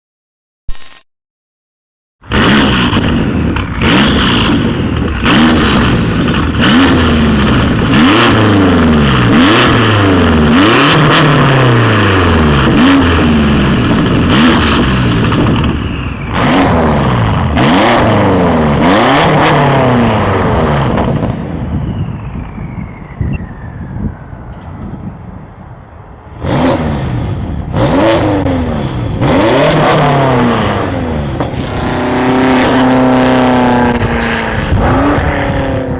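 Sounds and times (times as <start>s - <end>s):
car engine revving: 2.2s - 21.4s, 26.3s - 35.9s
exhaust cracks: 2.3s - 9.9s, 10.5s - 21.5s.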